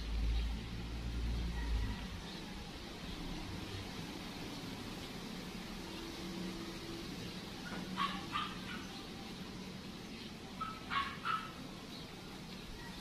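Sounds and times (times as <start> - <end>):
dog barking: 7.6 - 9.0, 10.6 - 11.6.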